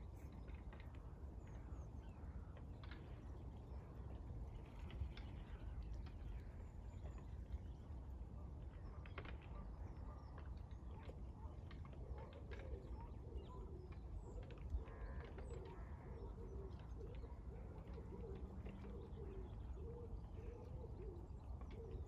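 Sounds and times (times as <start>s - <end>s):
low background noise: 0.0s - 22.0s
bird cooing: 12.1s - 13.9s, 15.4s - 22.0s.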